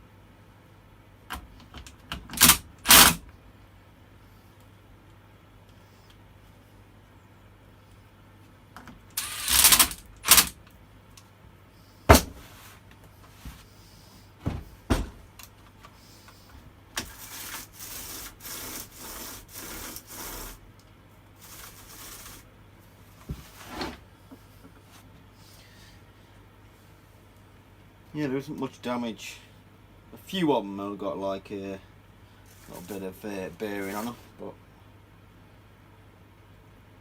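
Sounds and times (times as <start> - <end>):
short scraping strokes: 33.7 - 34.3.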